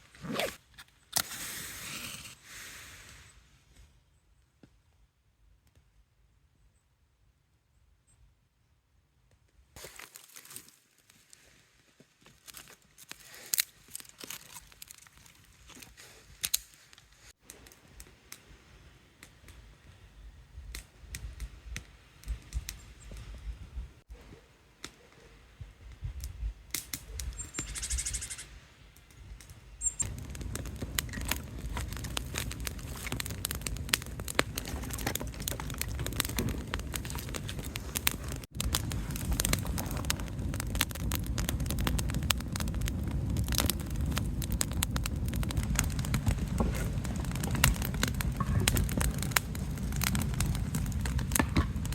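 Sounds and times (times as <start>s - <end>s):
campfire crackling: 9.8s - 51.9s
dry kindling snapping: 12.2s - 18.5s, 26.2s - 27.4s, 29.4s - 51.9s.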